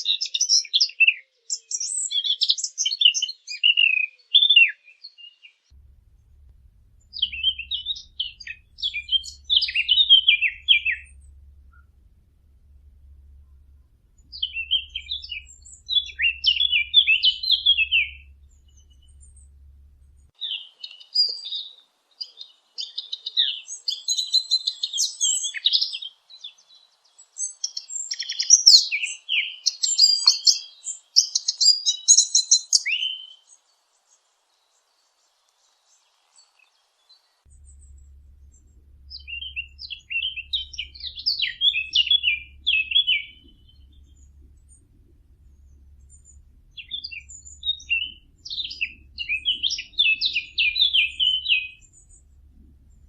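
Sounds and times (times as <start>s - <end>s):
small birds chirping: 0.0s - 53.0s
faint low hum: 5.7s - 20.9s, 35.3s - 53.0s.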